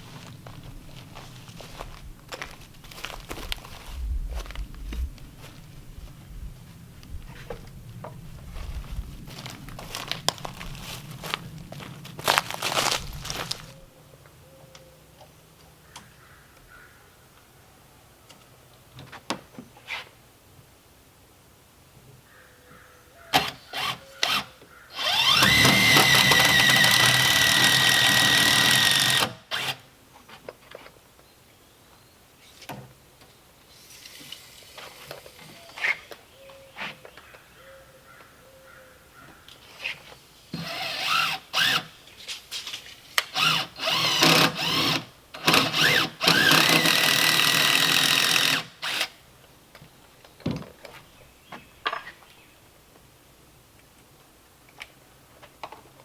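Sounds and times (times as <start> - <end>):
power drill whining: 12.8 - 13.8, 23.4 - 29.8, 40.6 - 41.9, 43.2 - 49.2.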